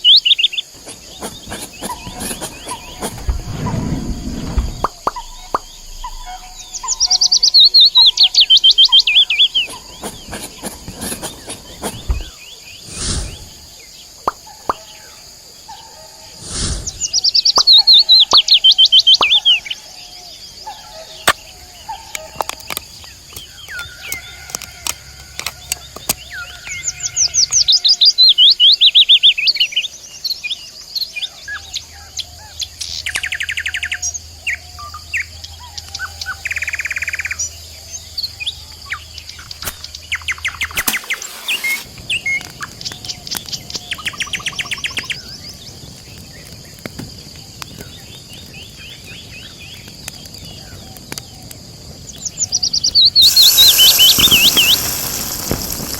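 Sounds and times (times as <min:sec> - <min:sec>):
steady high hiss: 0:00.0 - 0:14.3, 0:36.5 - 0:45.9, 0:51.6 - 0:55.9
songbirds trilling and chirping: 0:00.0 - 0:55.9
small clicks: 0:22.1 - 0:26.8.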